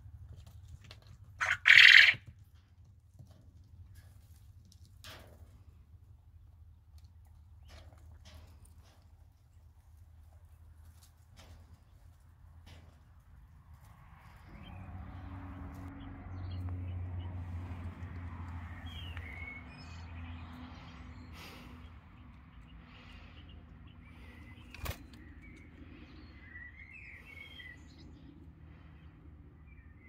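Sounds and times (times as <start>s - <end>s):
bird chirps: 18.7s - 20.4s, 23.4s - 28.3s.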